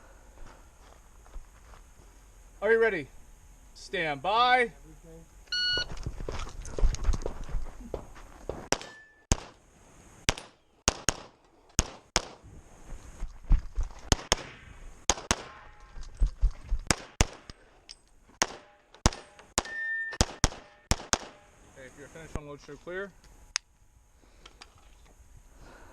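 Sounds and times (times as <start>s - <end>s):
brief ringing tone: 5.5s - 5.9s, 19.7s - 20.2s
pistol shots: 8.7s - 9.6s, 10.3s - 12.4s, 14.1s - 15.8s, 16.9s - 17.6s, 18.4s - 21.5s.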